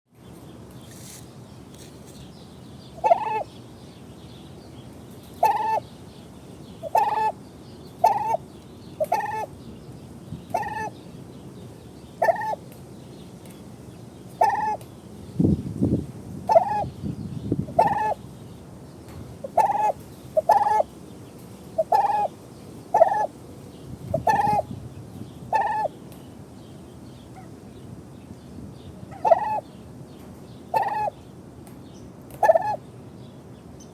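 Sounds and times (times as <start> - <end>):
turkey calling: 3.0 - 3.5, 5.4 - 5.8, 6.8 - 7.4, 8.0 - 8.4, 9.0 - 9.5, 10.5 - 10.9, 12.2 - 12.6, 14.4 - 14.8, 16.5 - 16.9, 17.7 - 18.2, 19.4 - 20.9, 21.8 - 22.3, 23.0 - 23.3, 24.1 - 24.6, 25.5 - 25.9, 29.1 - 29.6, 30.7 - 31.1, 32.4 - 32.8.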